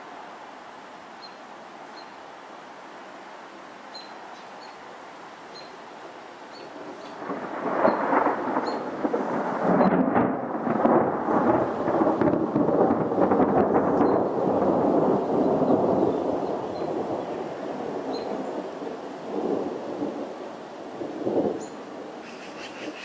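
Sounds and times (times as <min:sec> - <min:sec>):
crackling rumbling thunder: 0:06.7 - 0:23.0.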